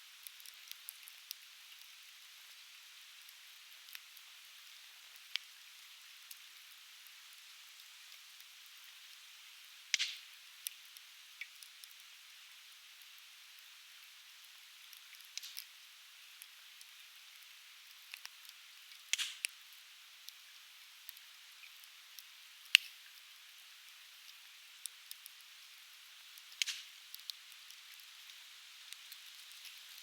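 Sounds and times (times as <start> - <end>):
steady hiss: 0.0 - 30.0
campfire crackling and popping: 9.8 - 12.0, 14.5 - 23.3, 23.9 - 30.0.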